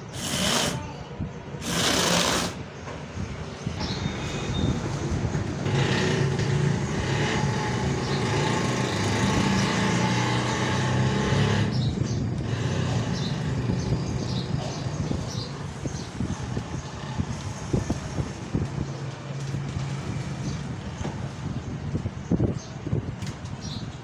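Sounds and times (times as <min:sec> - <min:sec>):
small electric motors whirring: 0:00.0 - 0:00.8, 0:01.6 - 0:02.6
hiss: 0:00.0 - 0:00.9, 0:01.6 - 0:02.6.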